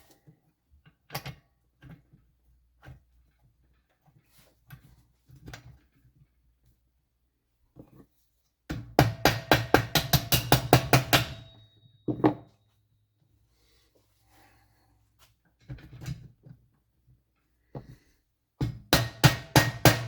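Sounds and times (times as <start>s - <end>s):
sharp ringing metal knocks: 9.0s - 12.5s.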